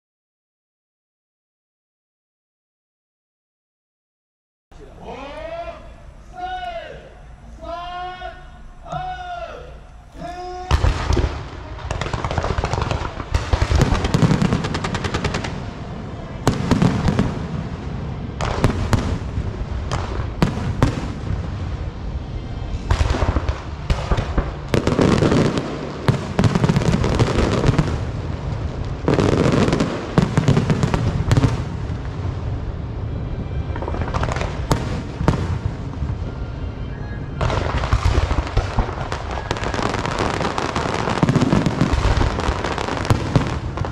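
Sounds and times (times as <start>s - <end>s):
fireworks crackling and banging: 10.1s - 43.9s.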